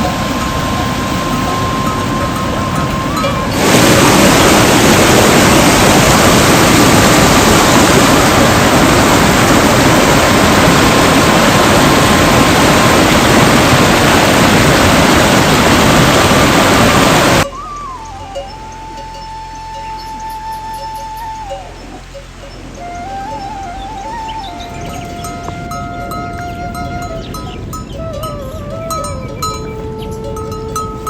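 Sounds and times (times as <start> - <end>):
loud rushing noise: 0.0 - 17.6.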